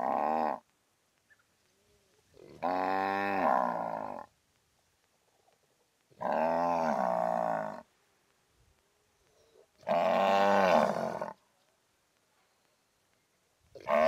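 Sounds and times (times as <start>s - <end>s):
cow mooing: 6.2s - 7.8s, 9.8s - 11.4s.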